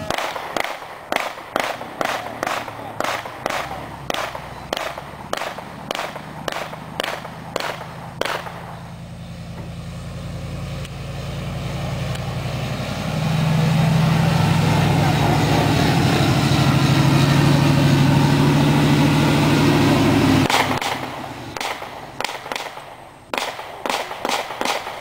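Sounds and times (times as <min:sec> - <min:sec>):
rapid sharp bangs: 0:00.0 - 0:08.9, 0:20.2 - 0:25.0
large engine running: 0:01.5 - 0:22.6.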